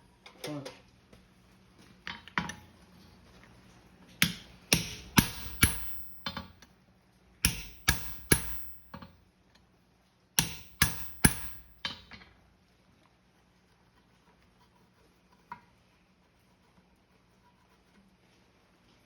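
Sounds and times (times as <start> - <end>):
hammer striking punch on metal: 4.2 - 6.5, 7.4 - 9.1, 10.4 - 12.0.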